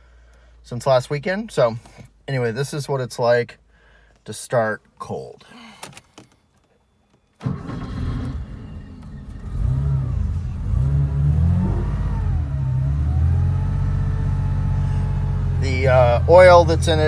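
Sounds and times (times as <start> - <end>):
car engine starting and running: 7.4 - 17.0.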